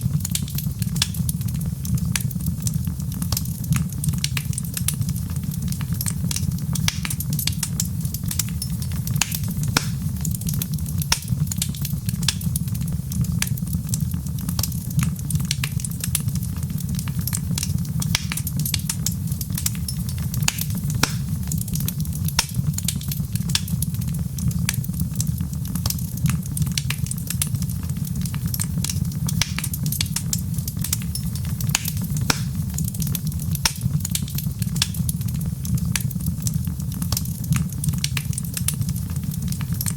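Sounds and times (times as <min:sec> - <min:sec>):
low fire rumble: 0:00.0 - 0:39.9
wood fire crackling: 0:00.0 - 0:39.9.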